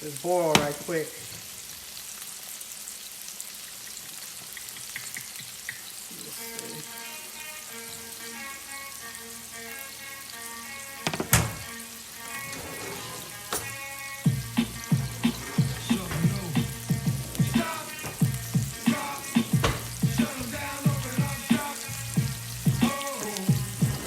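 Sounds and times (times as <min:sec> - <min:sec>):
chicken sizzling in a skillet: 0:00.0 - 0:12.6, 0:13.2 - 0:24.0
faint music: 0:06.2 - 0:24.0
rhythmic hits: 0:14.3 - 0:24.0
sharp knocks: 0:14.6 - 0:20.6.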